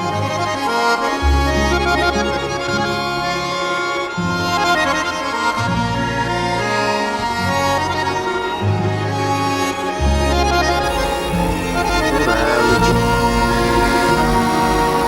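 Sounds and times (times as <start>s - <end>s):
accordion music: 0.0s - 15.0s.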